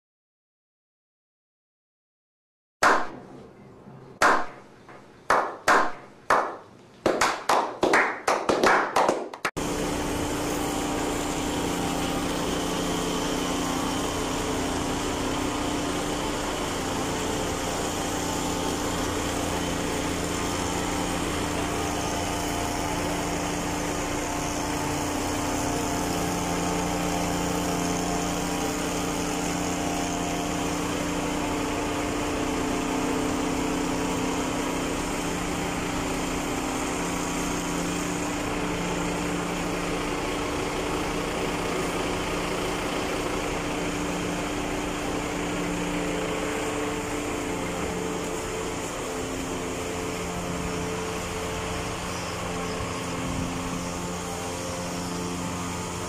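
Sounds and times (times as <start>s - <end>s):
hand clapping: 2.8s - 3.1s, 4.2s - 9.6s
backpack sprayer engine running: 9.6s - 56.0s.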